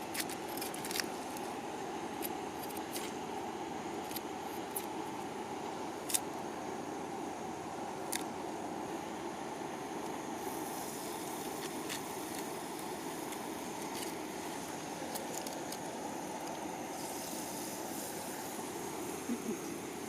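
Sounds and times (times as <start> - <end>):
river water flowing: 3.1 - 17.1.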